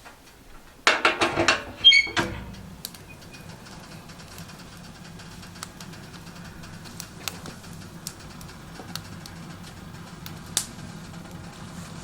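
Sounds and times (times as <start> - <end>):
faint fire crackles: 0.0 - 12.0
wood stove chimney draft rushing: 0.0 - 12.0
sharp clattering knocks: 0.9 - 4.3
brief ringing squeak: 1.8 - 2.5.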